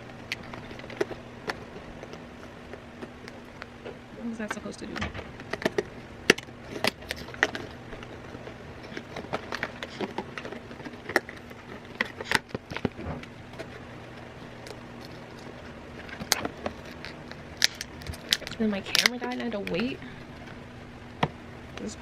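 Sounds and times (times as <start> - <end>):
faint low hum: 0.0 - 22.0
packaging crinkling and tearing: 5.2 - 20.6.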